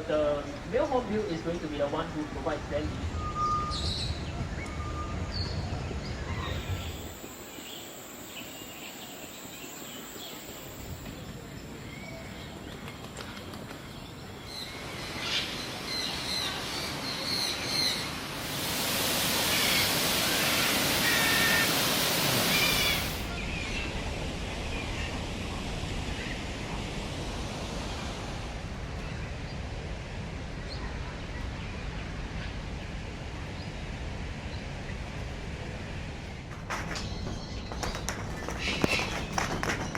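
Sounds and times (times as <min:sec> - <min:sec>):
birds chirping: 0:05.4 - 0:23.4, 0:36.3 - 0:39.9
loud rushing hiss: 0:06.3 - 0:12.0, 0:15.0 - 0:23.4.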